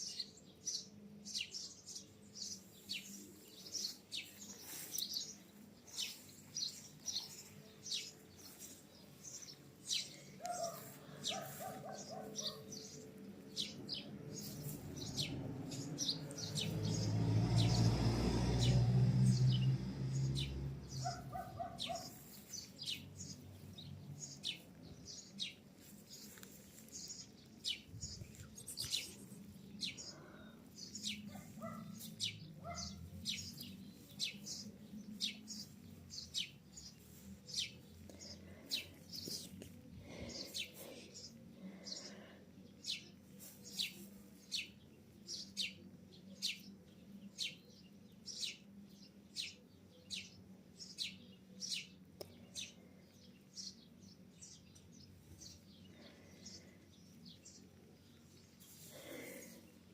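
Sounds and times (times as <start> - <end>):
bird chirping: 0.0 - 18.0, 18.6 - 59.9.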